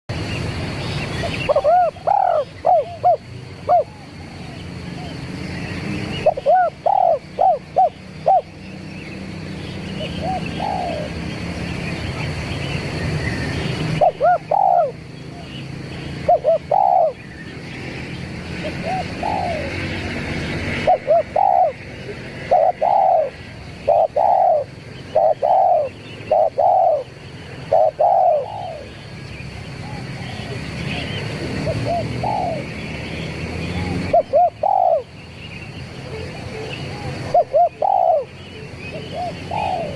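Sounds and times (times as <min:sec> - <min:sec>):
dove cooing: 0:01.2 - 0:05.2, 0:06.2 - 0:08.8, 0:09.8 - 0:11.5, 0:13.9 - 0:15.5, 0:16.2 - 0:17.3, 0:18.6 - 0:20.1, 0:20.7 - 0:29.0, 0:29.7 - 0:32.8, 0:33.7 - 0:35.1, 0:36.0 - 0:39.9.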